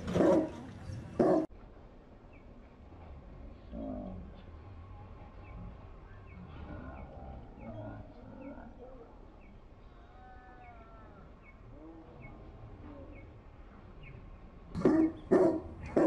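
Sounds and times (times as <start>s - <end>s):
faint gliding bird calls: 5.2s - 16.0s.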